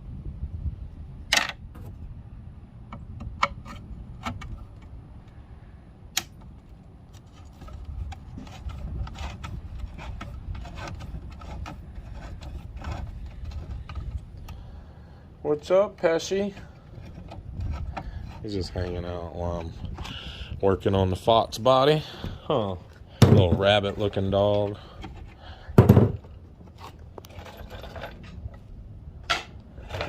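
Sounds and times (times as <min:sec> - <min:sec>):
low background rumble: 0:00.0 - 0:30.0.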